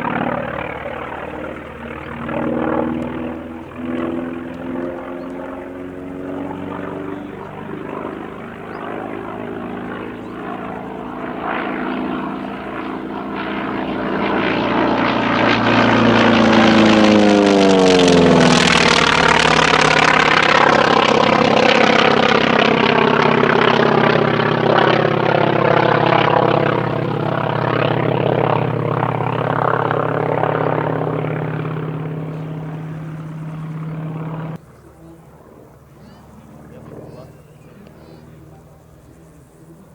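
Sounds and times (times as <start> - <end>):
propeller plane flyby: 0.0 - 39.9.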